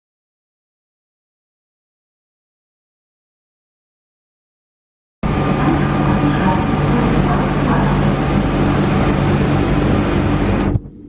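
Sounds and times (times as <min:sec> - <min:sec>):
electrical humming tones: 0:05.2 - 0:11.0
quiet low rumble: 0:05.2 - 0:11.0
train running rumble: 0:05.2 - 0:11.0.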